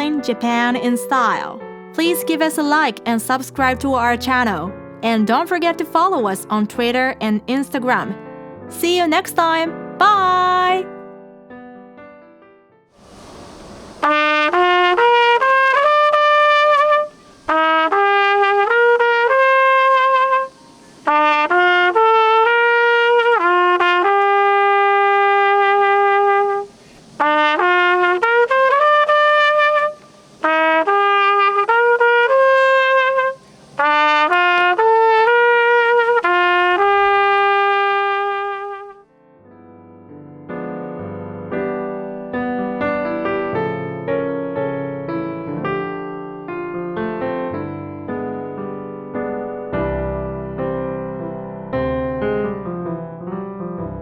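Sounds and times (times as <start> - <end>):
solo trumpet slow melody: 0.0 - 11.0, 13.0 - 39.2
soft piano: 0.0 - 15.7, 38.9 - 54.0.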